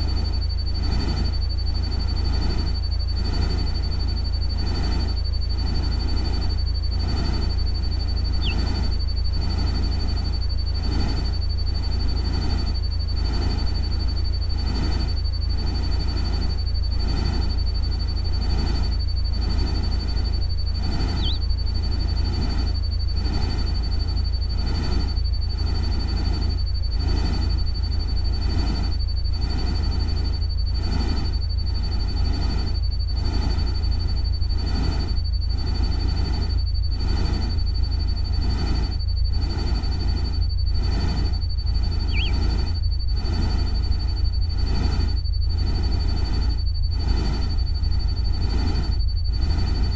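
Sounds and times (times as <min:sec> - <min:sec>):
short chirp: 0:08.4 - 0:08.7, 0:21.1 - 0:21.4, 0:42.0 - 0:42.5
high thin tone: 0:21.2 - 0:21.4, 0:42.1 - 0:42.4.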